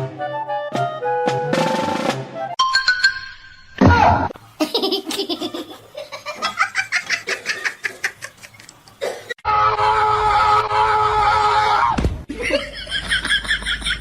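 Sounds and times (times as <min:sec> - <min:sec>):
loud falling cry: 0:11.2 - 0:12.0
person laughing hard: 0:12.3 - 0:14.0.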